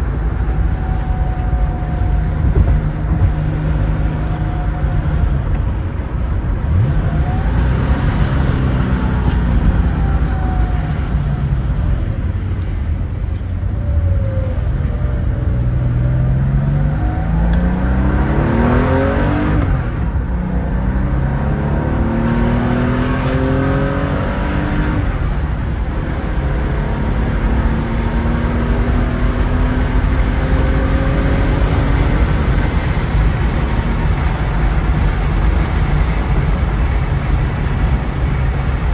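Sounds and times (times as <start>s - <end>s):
car engine accelerating through gears: 0.0s - 38.9s
road noise: 0.0s - 38.9s.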